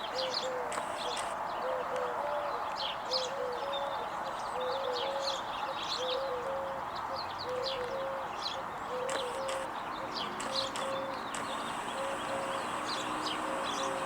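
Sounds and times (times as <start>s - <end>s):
songbirds chirping: 0.0s - 14.0s
doves cooing: 8.9s - 14.0s.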